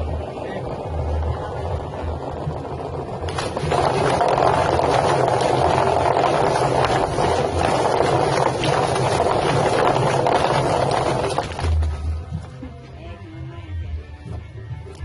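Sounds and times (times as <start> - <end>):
electric motor hum: 0.0 - 11.8
rapid slapping in spinning drum: 1.0 - 12.1
rushing water: 3.2 - 11.9.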